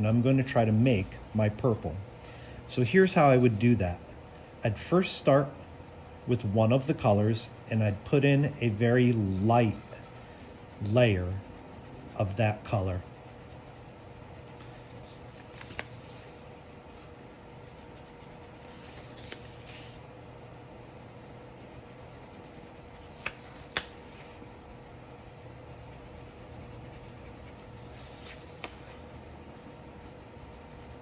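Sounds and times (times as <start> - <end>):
steady low hum: 0.0 - 31.0
crayon rubbing on paper: 6.4 - 31.0.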